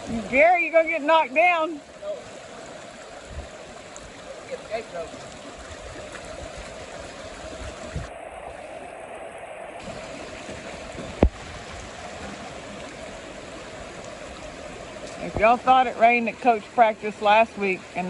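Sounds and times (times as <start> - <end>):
floodwater rushing in a creek: 0.0 - 18.0.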